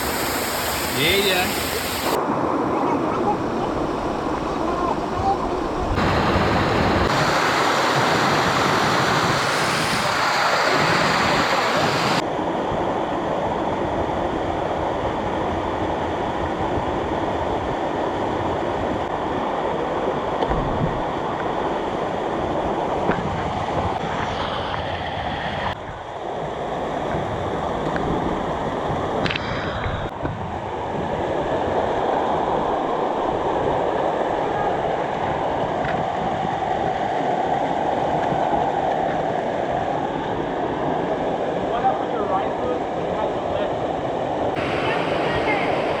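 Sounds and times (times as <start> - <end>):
rushing water: 0.0 - 12.2, 31.0 - 46.0.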